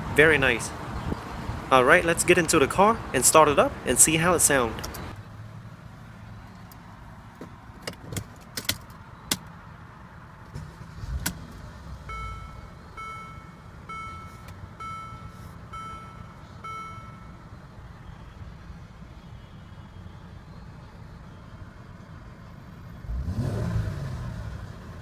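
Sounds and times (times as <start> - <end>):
dashboard warning chime: 12.1 - 17.7.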